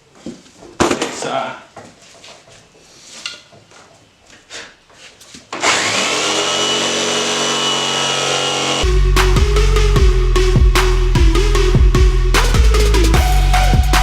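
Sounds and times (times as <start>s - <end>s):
power saw motor whine: 5.6s - 8.8s.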